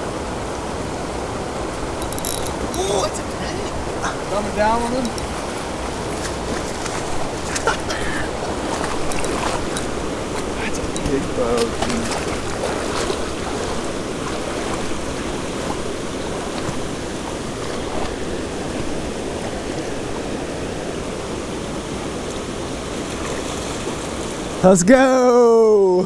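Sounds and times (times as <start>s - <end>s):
creek water rushing: 0.0s - 26.0s
faint ticks: 2.0s - 2.8s, 5.0s - 5.3s.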